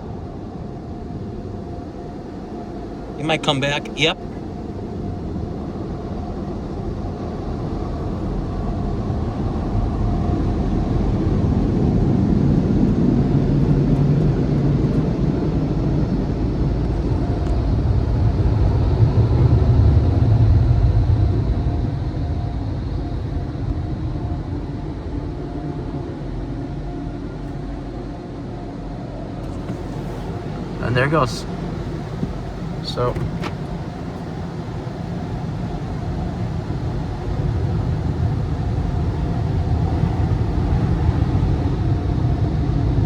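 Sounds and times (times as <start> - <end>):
car wash air dryer rushing: 29.4 - 43.0.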